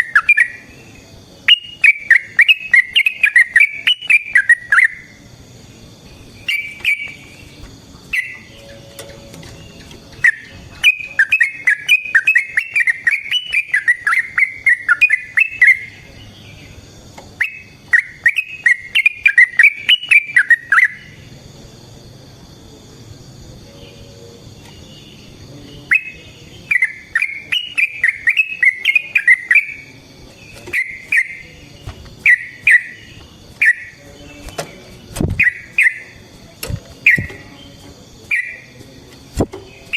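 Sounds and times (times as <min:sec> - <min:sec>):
bird singing bubbling notes: 0:01.4 - 0:05.2, 0:06.1 - 0:08.8, 0:09.4 - 0:16.0, 0:25.9 - 0:31.5, 0:32.2 - 0:34.0.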